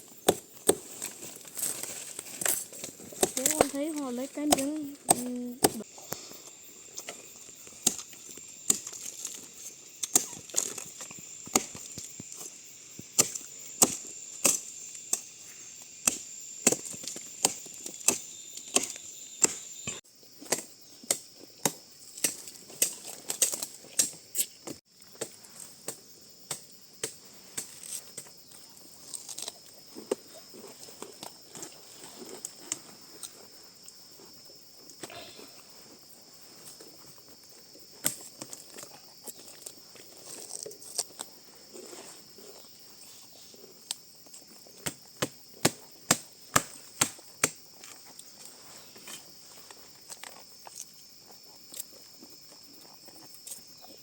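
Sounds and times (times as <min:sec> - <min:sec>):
high insect drone: 0:00.0 - 0:54.0
chopping strikes: 0:04.5 - 0:05.8.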